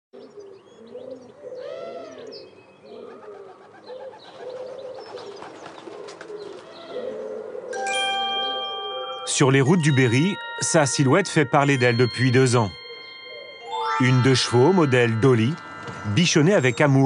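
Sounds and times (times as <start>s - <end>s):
small birds chirping: 0.2s - 7.4s
bird cooing: 0.2s - 7.8s
bell-like chime: 7.8s - 17.0s.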